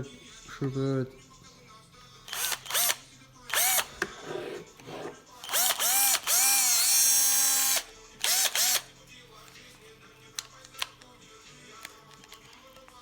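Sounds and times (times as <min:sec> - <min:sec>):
drill motor whirring: 0:02.3 - 0:04.0, 0:05.4 - 0:08.9.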